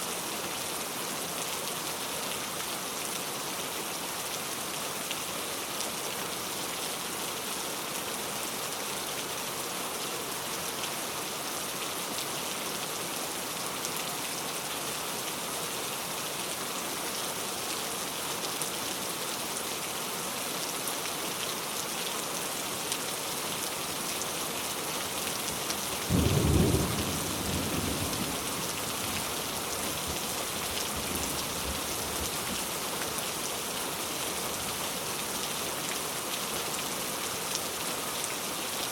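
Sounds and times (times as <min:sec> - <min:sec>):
heavy rain falling: 0:00.1 - 0:38.9
thunder clap and rumble: 0:26.1 - 0:28.7.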